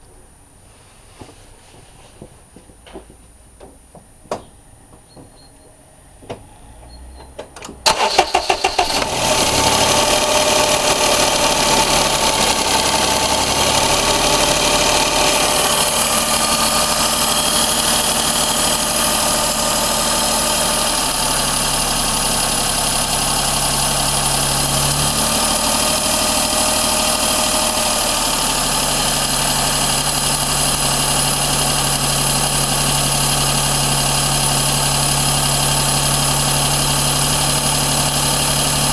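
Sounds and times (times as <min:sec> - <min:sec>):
car engine idling: 0:06.0 - 0:38.9
engine starter cranking: 0:06.5 - 0:33.3.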